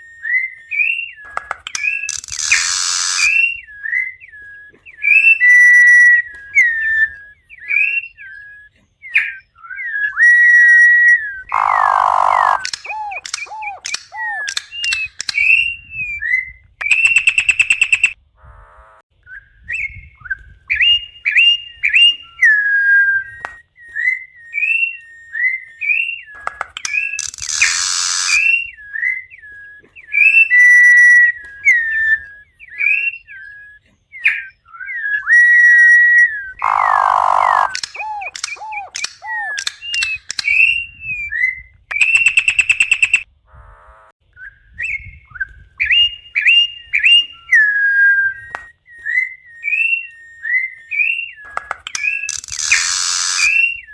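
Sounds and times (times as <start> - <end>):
bird whistling song: 0.0 - 18.2, 19.2 - 43.3, 44.3 - 53.9
harsh rasping bird buzz: 1.2 - 3.5, 11.4 - 15.4, 17.9 - 19.0, 26.4 - 28.7, 36.6 - 40.3, 42.2 - 44.2, 51.5 - 53.8.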